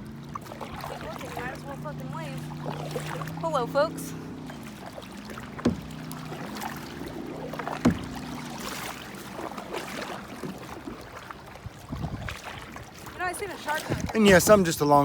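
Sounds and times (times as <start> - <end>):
paddle splashing in water: 0.0 - 15.0
sharp knocks: 5.6 - 6.6, 7.6 - 8.4.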